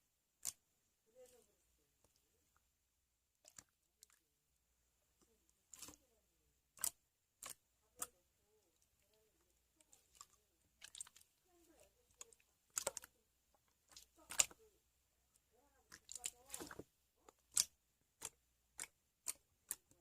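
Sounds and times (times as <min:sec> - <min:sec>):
sticky slime pops: 0:15.9 - 0:19.9.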